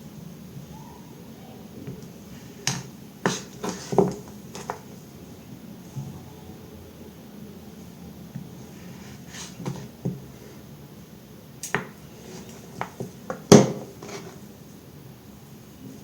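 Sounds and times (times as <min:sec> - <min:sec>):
knife cutting soap: 0:02.4 - 0:04.9, 0:11.7 - 0:14.4.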